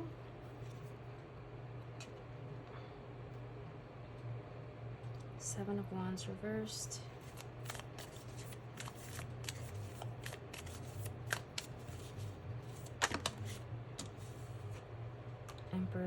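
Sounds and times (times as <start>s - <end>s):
cards being shuffled: 7.2s - 14.8s.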